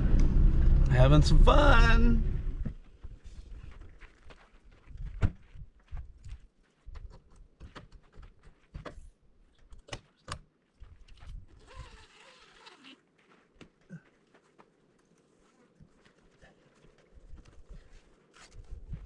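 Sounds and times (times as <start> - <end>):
wind on microphone: 18.6 - 19.0.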